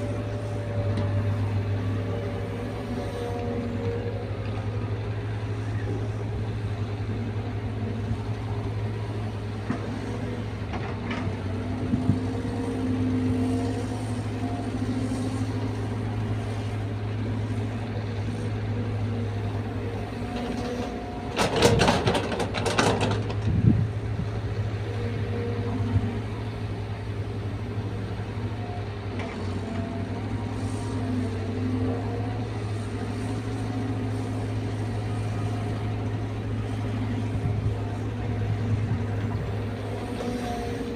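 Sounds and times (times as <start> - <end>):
excavator diesel engine running: 0.0 - 40.9
loud clattering and knocking: 21.4 - 23.5.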